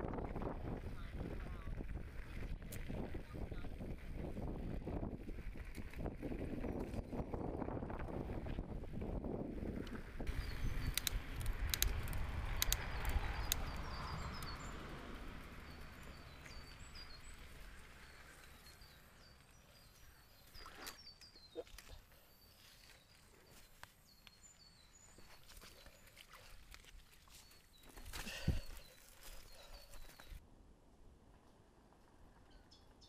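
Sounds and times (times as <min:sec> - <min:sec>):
wind on microphone: 0:00.0 - 0:14.8
mountain bike rolling on dirt: 0:00.0 - 0:20.4, 0:22.2 - 0:30.4
small birds chirping: 0:10.3 - 0:30.4.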